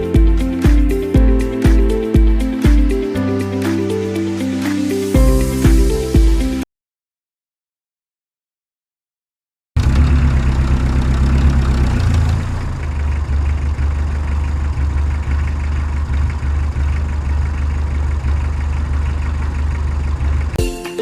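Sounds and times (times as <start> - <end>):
heavy truck engine idling: 9.8 - 20.6.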